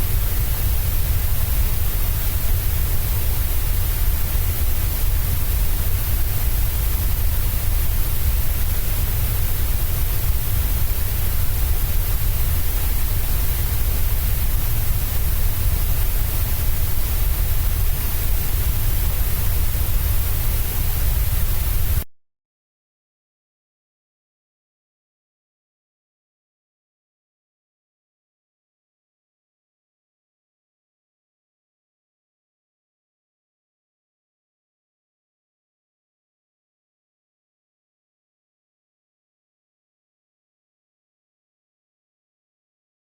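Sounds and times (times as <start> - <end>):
white noise hiss with deep rumble: 0.0 - 22.1.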